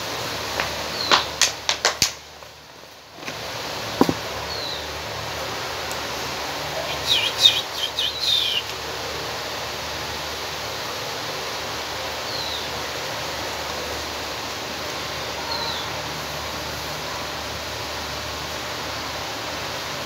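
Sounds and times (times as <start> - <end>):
background hiss: 0.0 - 20.0
small bird chirping: 6.8 - 8.7.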